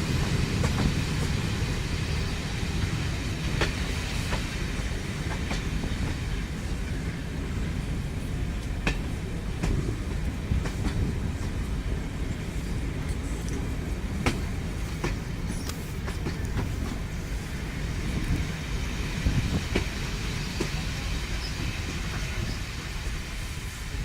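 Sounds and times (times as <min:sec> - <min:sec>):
train rumbling on track: 0:00.0 - 0:24.0
wheels clicking over rail joint: 0:13.0 - 0:17.3.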